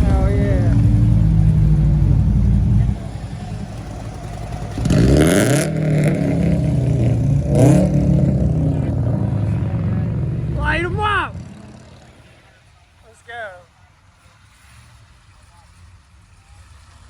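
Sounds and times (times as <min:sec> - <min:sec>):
car engine revving: 0:00.0 - 0:13.5.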